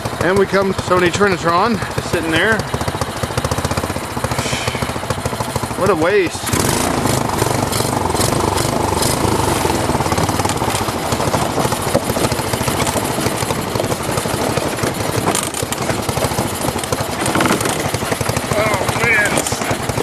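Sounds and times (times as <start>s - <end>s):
small engine running steadily: 0.0s - 20.0s.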